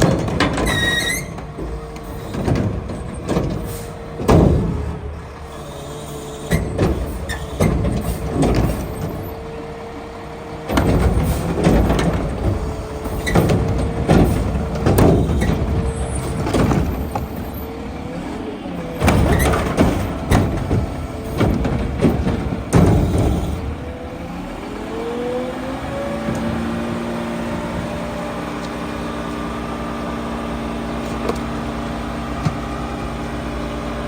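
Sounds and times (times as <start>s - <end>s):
clanks and bangs: 0.0s - 5.4s, 10.7s - 18.3s, 18.9s - 24.0s
garbage truck whining: 0.0s - 34.0s.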